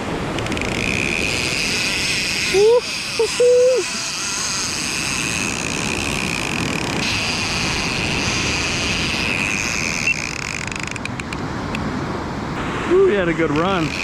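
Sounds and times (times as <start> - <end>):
fishing reel drag whining: 0.2 - 11.4, 13.3 - 14.0
person shouting: 2.6 - 3.8.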